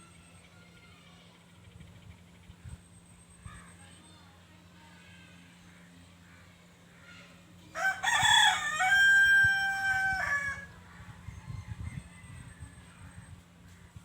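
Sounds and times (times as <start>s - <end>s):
rooster crowing: 7.8s - 10.7s.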